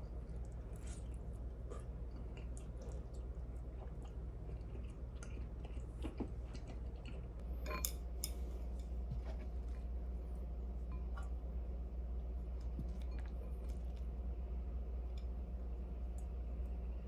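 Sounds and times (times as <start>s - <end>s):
person chewing food: 0.1s - 7.4s.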